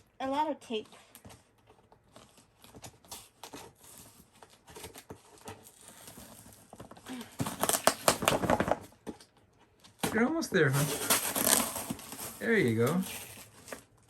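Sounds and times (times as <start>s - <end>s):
scratching and rustling cardboard: 0.4s - 14.0s
packing tape ripping: 2.5s - 8.9s, 10.0s - 13.9s.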